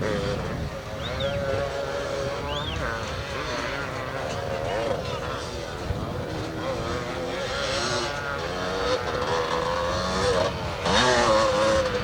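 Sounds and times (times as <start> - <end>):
motocross bikes revving: 6.8 - 12.0.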